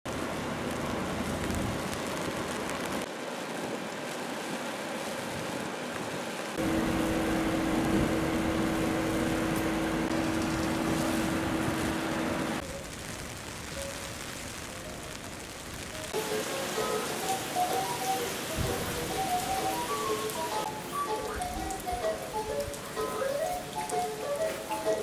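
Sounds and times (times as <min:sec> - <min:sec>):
rain on wet paving: 0:00.1 - 0:25.0
low hum: 0:06.6 - 0:12.6.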